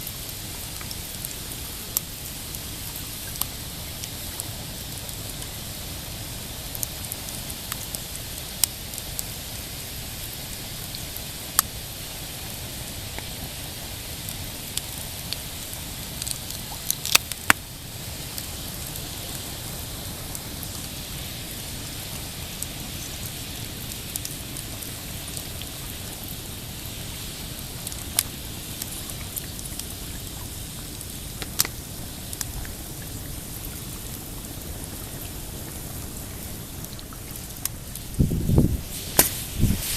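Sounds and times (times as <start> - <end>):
fire rushing hiss: 0.0 - 39.9
campfire pops and snaps: 6.7 - 9.3, 14.7 - 17.8, 27.8 - 30.0, 30.8 - 32.8, 36.8 - 39.9.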